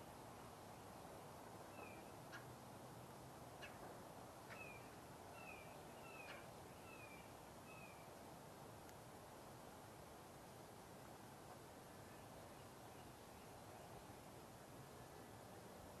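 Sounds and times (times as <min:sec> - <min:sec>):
steady faint hiss: 0:00.0 - 0:16.0
faint sharp clicks: 0:08.8 - 0:09.0.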